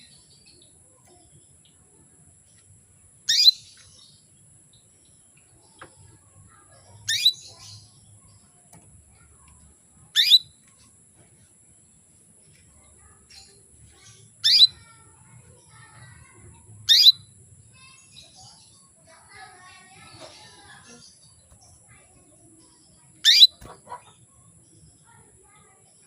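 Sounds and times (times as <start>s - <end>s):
faint bird chirps: 3.2s - 11.3s, 11.9s - 26.0s
canary contact calls: 6.5s - 7.7s, 23.2s - 24.2s.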